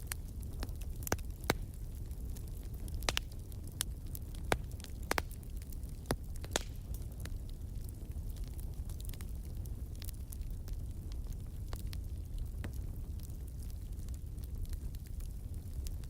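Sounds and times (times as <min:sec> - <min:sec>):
low steady fire rumble: 0:00.0 - 0:16.0
wood fire popping and crackling: 0:00.0 - 0:16.0.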